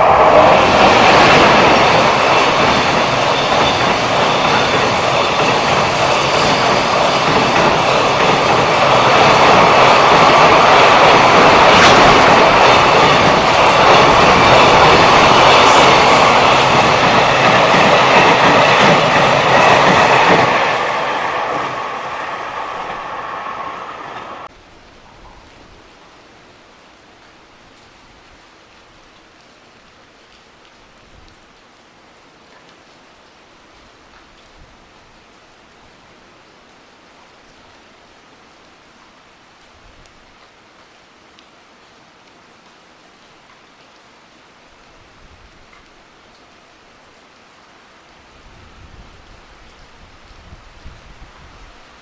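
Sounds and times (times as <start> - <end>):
freight train passing: 0.0 - 24.5.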